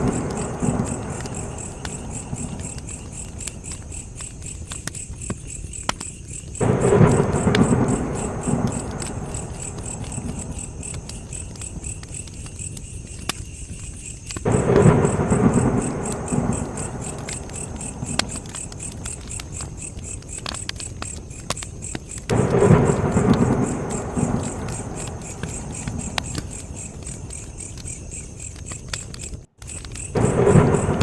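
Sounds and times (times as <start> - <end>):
campfire crackling and popping: 0.0 - 31.0
crickets chirping: 0.0 - 31.0
low rumble: 6.6 - 11.4, 14.5 - 18.9.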